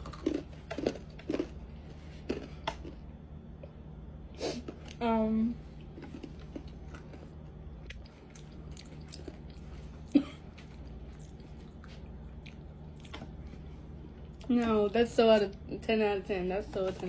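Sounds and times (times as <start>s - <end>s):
people chewing crunchy snacks: 0.0s - 5.0s, 5.6s - 14.5s.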